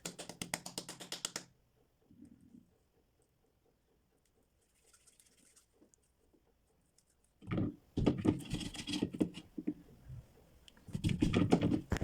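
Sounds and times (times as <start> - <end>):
hands kneading slime: 0.0 - 1.5.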